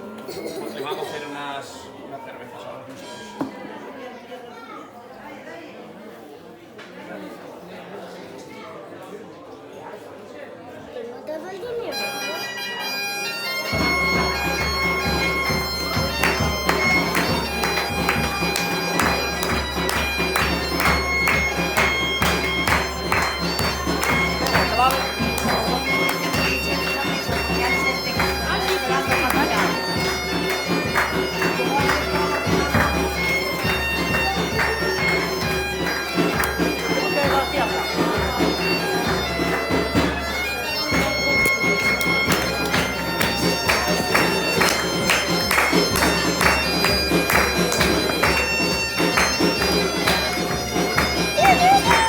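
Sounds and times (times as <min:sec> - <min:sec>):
bagpipe playing a tune: 0:11.8 - 0:52.0
drum beating: 0:13.7 - 0:52.0.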